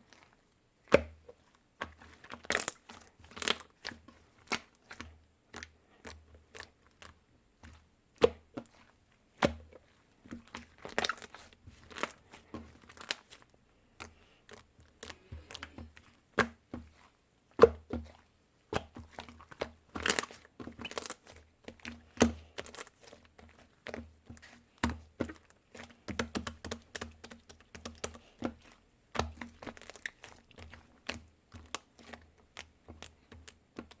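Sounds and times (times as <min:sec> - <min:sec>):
crinkling and clicking: 0:10.3 - 0:16.1, 0:19.0 - 0:34.0.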